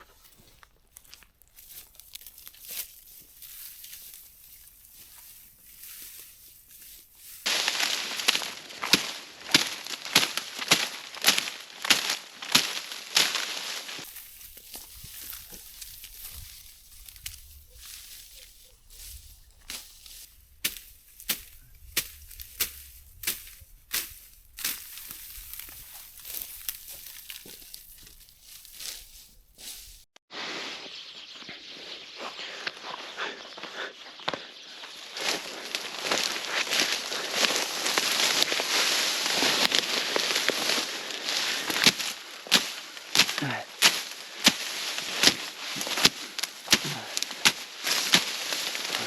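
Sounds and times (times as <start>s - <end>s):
crackles and snaps: 0.2s - 6.6s, 7.4s - 30.0s, 34.3s - 49.0s
loud rustling: 7.4s - 14.2s, 34.8s - 49.0s.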